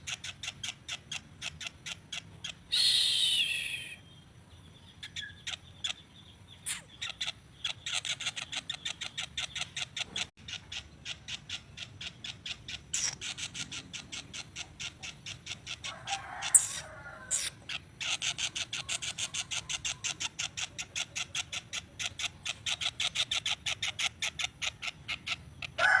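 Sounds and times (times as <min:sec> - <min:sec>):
songbird chip notes: 0:05.0 - 0:09.7.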